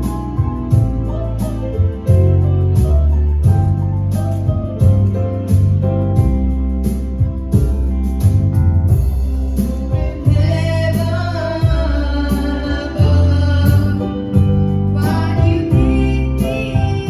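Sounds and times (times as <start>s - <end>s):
bass and guitar accompaniment: 0.0s - 17.0s
person singing gospel: 9.8s - 17.0s.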